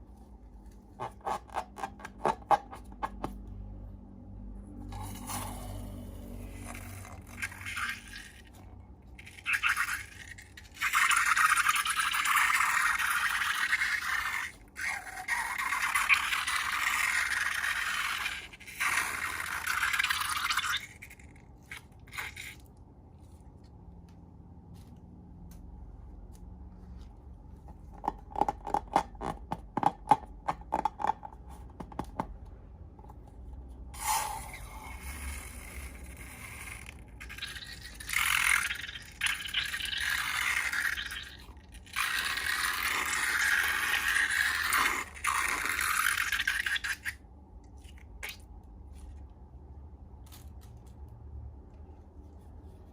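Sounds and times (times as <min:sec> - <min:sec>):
slime scraping and squelching: 0:04.8 - 0:23.8, 0:34.0 - 0:49.3.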